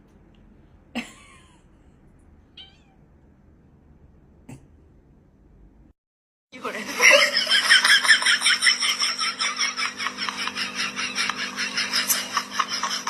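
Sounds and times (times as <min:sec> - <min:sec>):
low hum: 0:00.0 - 0:06.0
rapid high-pitched laughter: 0:07.0 - 0:13.0.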